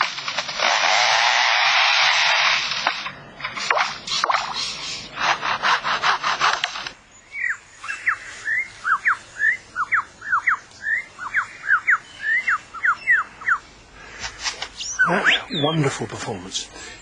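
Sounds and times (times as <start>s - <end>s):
bird rasping sawing pulses: 0.0s - 7.0s.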